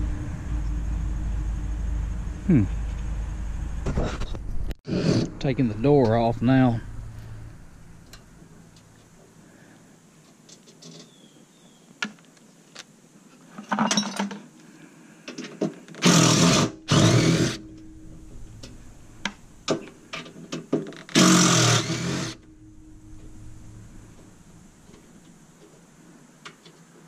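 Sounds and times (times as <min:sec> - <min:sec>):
power drill removing screws: 0:15.9 - 0:17.6, 0:20.8 - 0:22.4.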